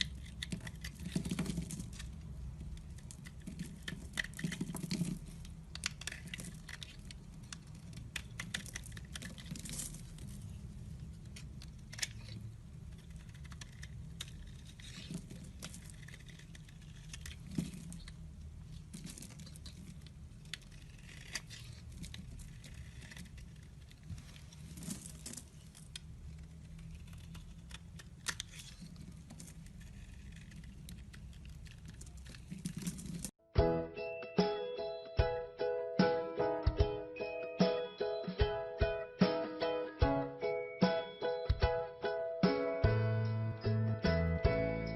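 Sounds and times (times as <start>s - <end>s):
knife scraping dry soap: 12.9s - 18.1s, 19.0s - 24.0s, 26.7s - 33.0s.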